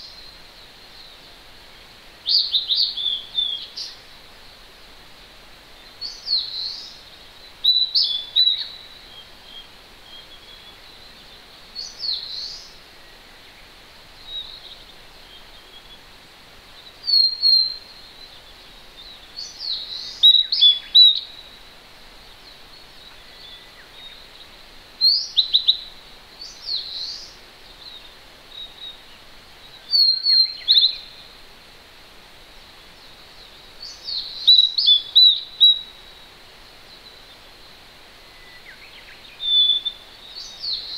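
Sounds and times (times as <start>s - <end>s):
distant mountain stream: 0.0s - 40.9s
songbirds singing: 0.0s - 40.9s.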